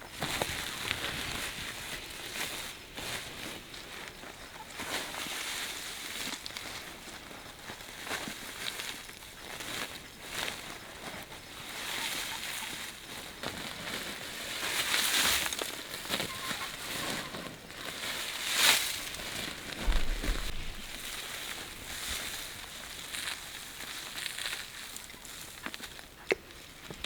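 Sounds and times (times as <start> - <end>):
rustling and scraping: 0.0 - 27.0
dull thud: 19.7 - 21.2.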